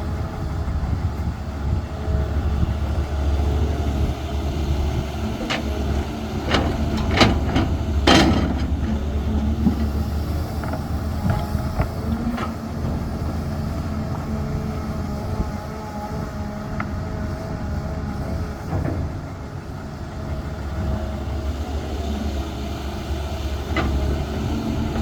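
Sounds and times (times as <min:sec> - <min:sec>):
excavator diesel engine running: 0:00.0 - 0:25.0
sharp metal knocks and clanks: 0:06.5 - 0:09.0.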